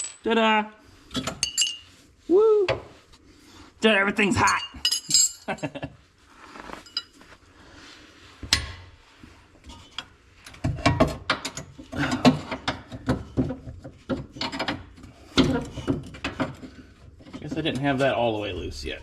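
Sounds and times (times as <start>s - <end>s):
metal clinking and clanking: 4.4s - 5.7s.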